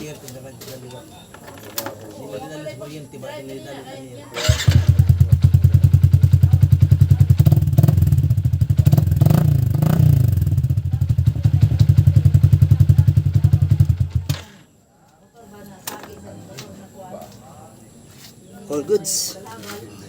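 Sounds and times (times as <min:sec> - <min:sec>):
motorcycle engine idling and revving: 0:04.4 - 0:14.6.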